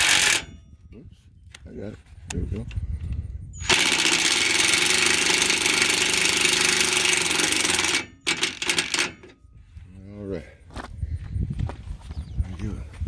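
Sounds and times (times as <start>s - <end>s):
power drill driving a screw: 0.0s - 0.5s, 3.6s - 9.4s.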